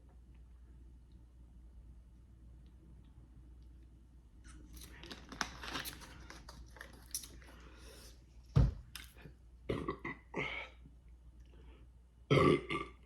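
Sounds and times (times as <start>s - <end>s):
person burping: 9.7s - 10.7s, 12.3s - 13.0s.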